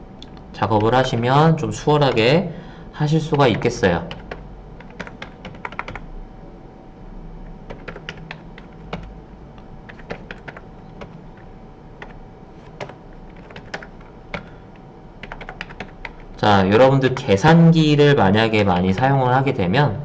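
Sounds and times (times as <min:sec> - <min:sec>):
computer keyboard typing: 0:00.7 - 0:02.3, 0:03.2 - 0:06.1, 0:07.6 - 0:09.2, 0:09.9 - 0:14.6, 0:15.2 - 0:17.4, 0:18.4 - 0:19.2.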